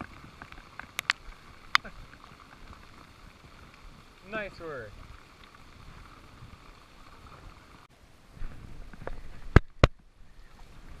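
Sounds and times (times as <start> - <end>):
rain and water noise: 0.0 - 11.0.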